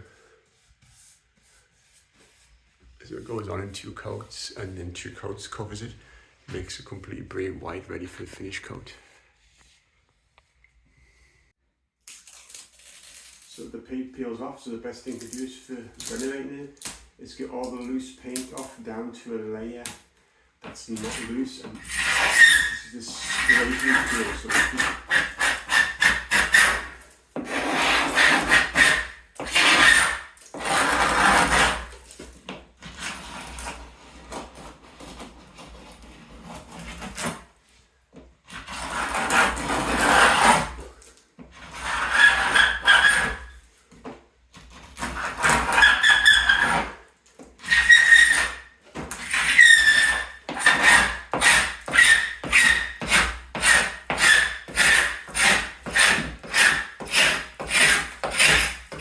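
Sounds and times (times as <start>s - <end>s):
scraper rasping paint off wood: 21.0s - 32.0s, 41.6s - 43.5s, 47.6s - 59.0s.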